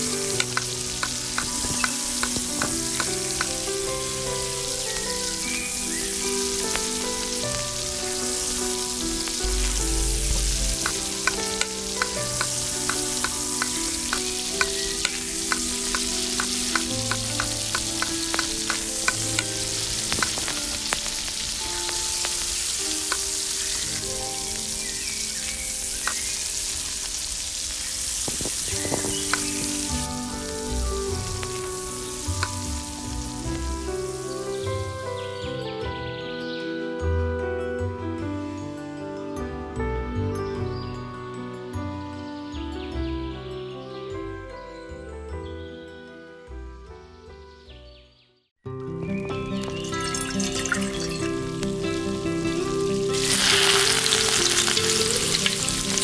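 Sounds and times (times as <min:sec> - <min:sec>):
curry sizzling in a pot: 0:00.0 - 0:35.4, 0:49.1 - 0:56.0.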